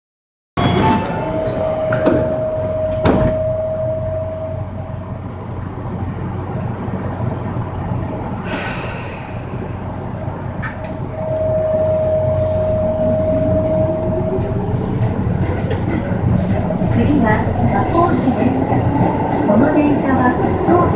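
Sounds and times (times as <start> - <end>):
train motor whine: 0.6 - 4.8
subway train rumble: 0.6 - 20.9.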